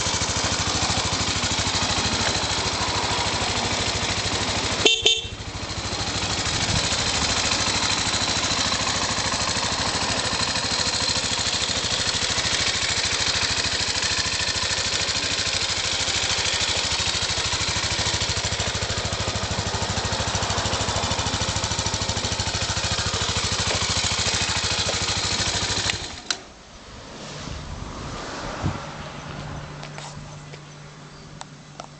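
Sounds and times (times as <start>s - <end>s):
motorcycle engine idling: 0.0s - 26.6s
engine switch-off click: 25.8s - 26.5s.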